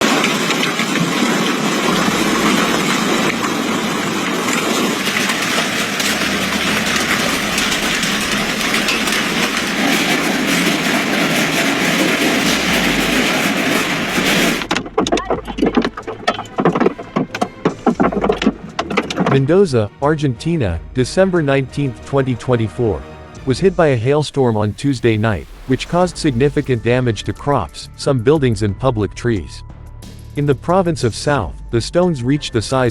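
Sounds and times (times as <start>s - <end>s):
hail clattering: 0.0s - 19.9s, 21.1s - 26.9s.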